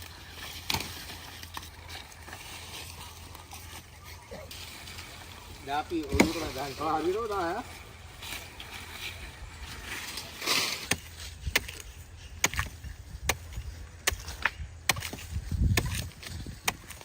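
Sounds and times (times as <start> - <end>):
blade chopping wood: 0.5 - 1.6, 6.0 - 6.6, 10.7 - 17.0.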